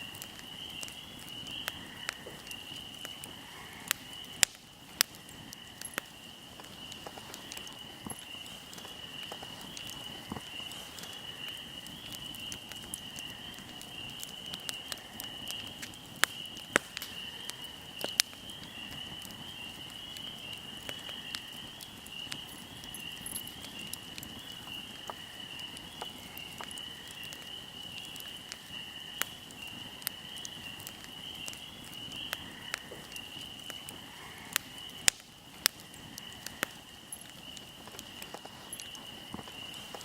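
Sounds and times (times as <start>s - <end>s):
fire crackling and popping: 0.0s - 40.0s
high-pitched insect trill: 22.2s - 25.7s.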